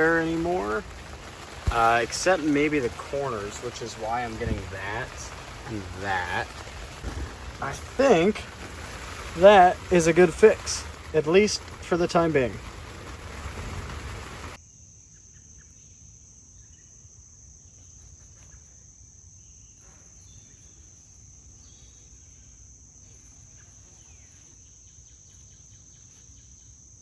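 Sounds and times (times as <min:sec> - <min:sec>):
faint chirps: 0:00.0 - 0:14.6
low outdoor rumble: 0:00.0 - 0:14.6
insects chirring: 0:00.0 - 0:27.0.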